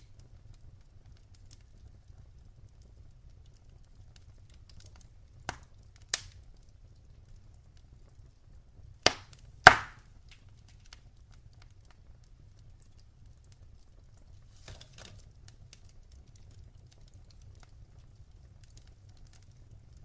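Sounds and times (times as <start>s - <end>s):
wood fire crackling: 0.0s - 20.0s
sharp pops of fire: 2.8s - 6.8s, 9.0s - 12.0s.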